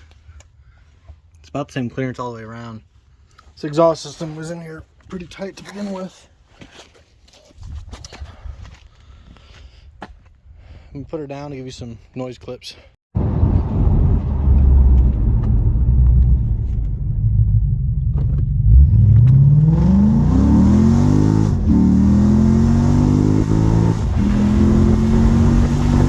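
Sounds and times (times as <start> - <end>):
car engine rumbling and accelerating: 13.2 - 26.0.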